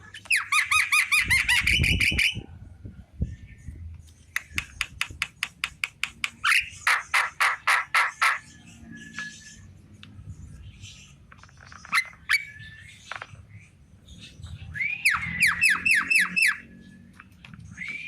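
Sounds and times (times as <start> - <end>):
bird whistling and calling: 0.2 - 2.5, 11.8 - 13.1, 14.7 - 18.0.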